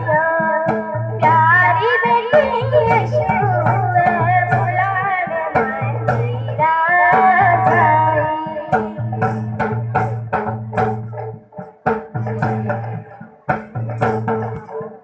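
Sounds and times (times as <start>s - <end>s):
girl singing folk song: 0.0s - 10.0s
hand drum and percussion: 0.0s - 15.0s.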